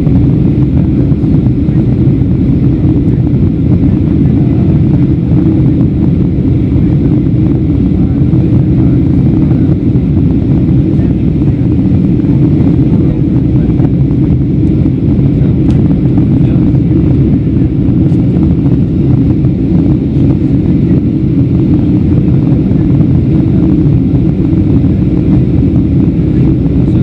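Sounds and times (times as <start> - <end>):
airplane cabin engine drone: 0.0 - 27.0.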